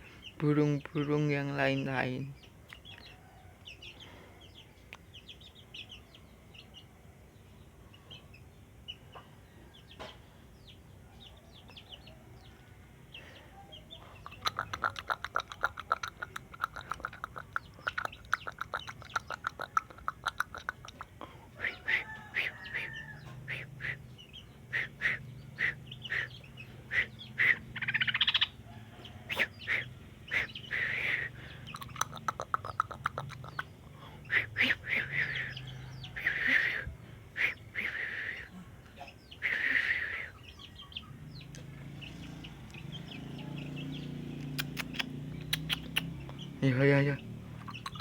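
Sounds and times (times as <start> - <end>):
bulbul chirping: 14.0 - 38.5, 39.1 - 48.0.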